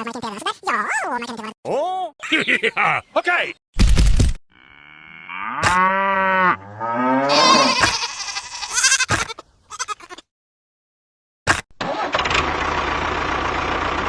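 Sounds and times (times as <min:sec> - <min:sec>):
animal mooing: 0:04.5 - 0:08.8.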